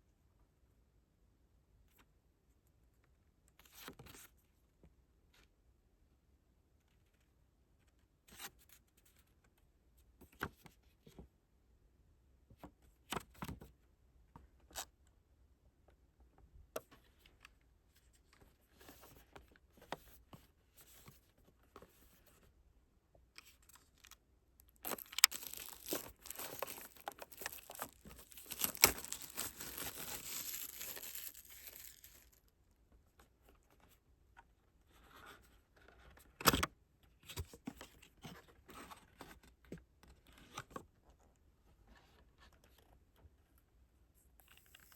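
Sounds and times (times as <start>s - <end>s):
packaging taps and rustles: 24.8s - 32.2s
packaging tearing and crinkling: 24.8s - 32.4s.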